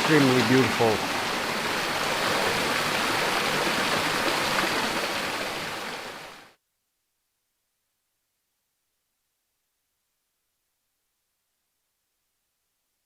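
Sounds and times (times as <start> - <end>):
waterfall rushing: 0.0 - 6.6.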